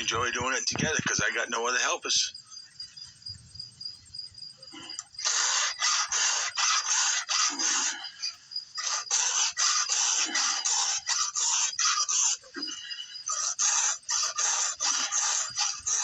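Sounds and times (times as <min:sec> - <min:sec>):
file rasping on chainsaw chain: 0:05.0 - 0:08.1, 0:08.8 - 0:12.6, 0:13.2 - 0:16.0.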